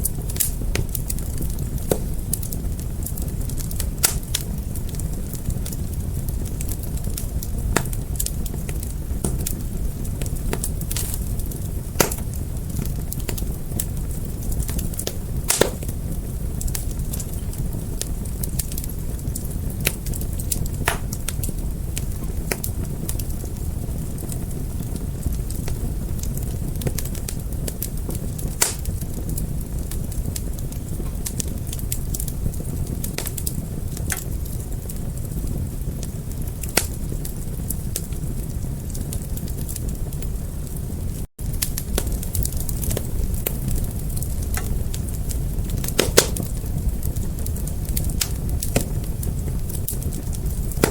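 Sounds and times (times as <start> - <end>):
fire crackling and popping: 0.0 - 50.9.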